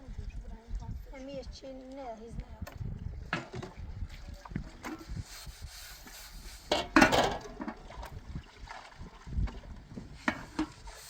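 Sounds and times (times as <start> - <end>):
clattering rustle: 6.6 - 7.8.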